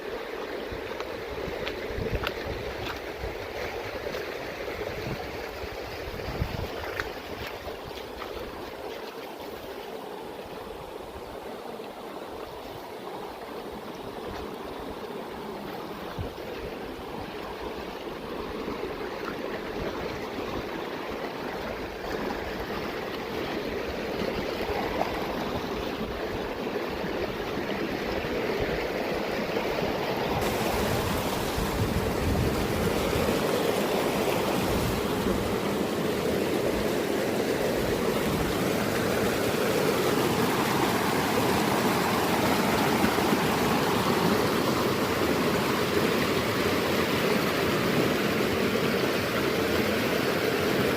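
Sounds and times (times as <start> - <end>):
mountain stream rushing: 0.0 - 50.9.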